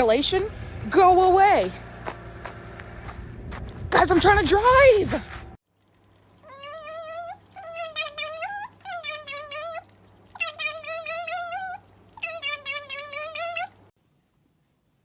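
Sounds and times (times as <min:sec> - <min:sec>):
low steady hum: 0:00.0 - 0:15.0
cat meowing: 0:06.4 - 0:13.8.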